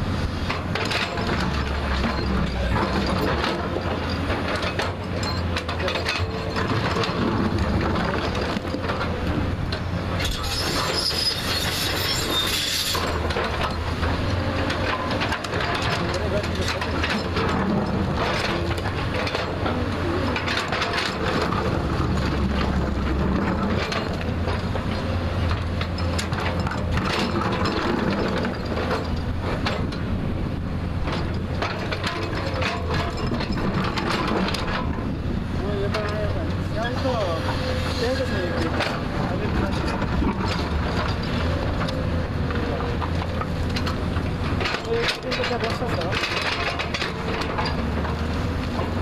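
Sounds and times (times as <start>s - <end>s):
knocks of earth and stones: 0.0s - 30.1s, 31.0s - 49.0s
diesel engine running: 0.0s - 49.0s
high scraping squeal: 10.2s - 13.2s.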